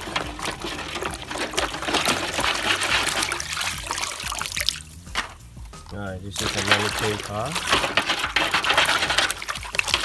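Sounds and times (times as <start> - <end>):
water trickling and splashing: 0.0 - 10.0.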